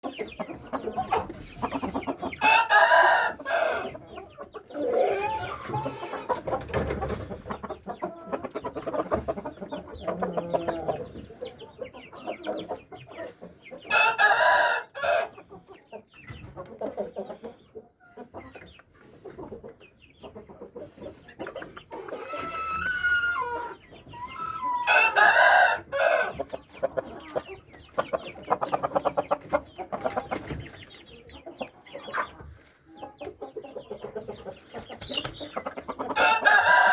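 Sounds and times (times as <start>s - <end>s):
rooster crowing: 2.4s - 3.9s, 13.9s - 15.3s, 22.3s - 26.4s, 36.2s - 36.9s
soft clucking: 4.1s - 13.5s, 15.5s - 24.6s.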